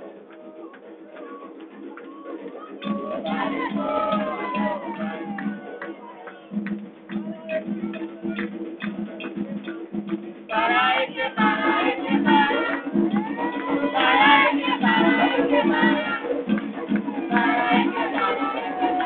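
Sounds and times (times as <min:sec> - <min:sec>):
drums: 0:00.0 - 0:19.0
voices singing loudly: 0:00.1 - 0:06.6, 0:10.5 - 0:19.0.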